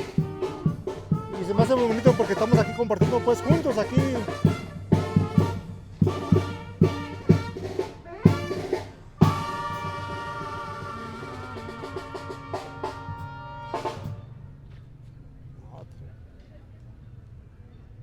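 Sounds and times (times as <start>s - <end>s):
brass band playing: 0.0s - 14.4s.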